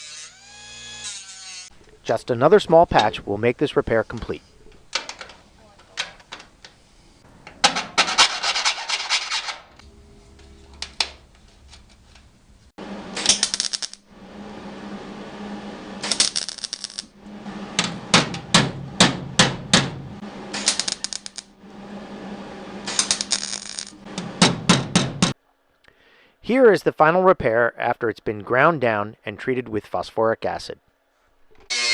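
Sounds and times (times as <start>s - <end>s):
steady low hum: 9.8s - 25.4s
welding pops: 13.2s - 14.0s, 17.8s - 21.5s, 22.9s - 25.4s
welding crackle: 13.2s - 14.1s, 16.0s - 17.2s, 20.5s - 21.5s, 22.9s - 24.0s.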